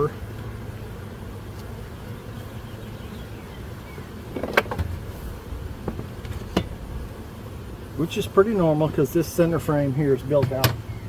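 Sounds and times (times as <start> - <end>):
honeybees humming: 0.0 - 11.0
hive frames clicking and knocking: 4.3 - 5.0, 5.8 - 6.8, 10.2 - 10.9.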